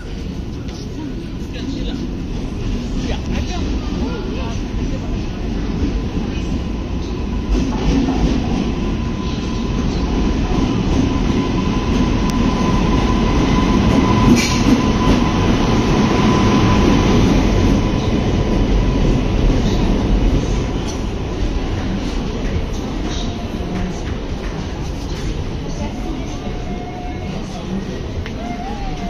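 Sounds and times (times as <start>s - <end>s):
train wheels rumbling on rails: 0.0s - 29.0s
locomotive whine: 8.4s - 29.0s.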